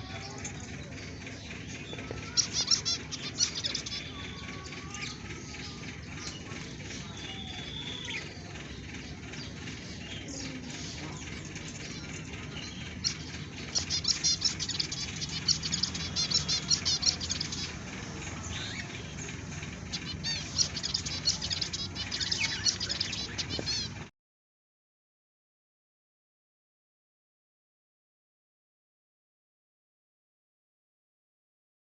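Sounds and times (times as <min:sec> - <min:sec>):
budgerigars chattering: 0:00.0 - 0:24.0.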